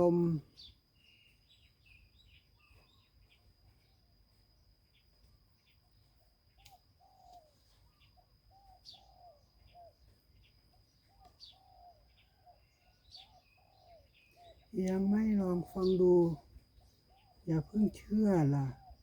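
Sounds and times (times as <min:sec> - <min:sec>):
faint dove cooing: 0:06.6 - 0:10.1.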